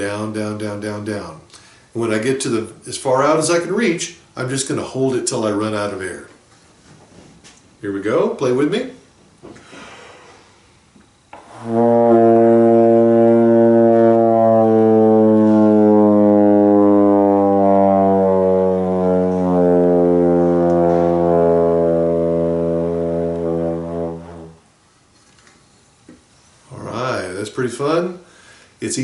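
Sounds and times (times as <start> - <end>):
trombone note falling in pitch: 11.4 - 24.7.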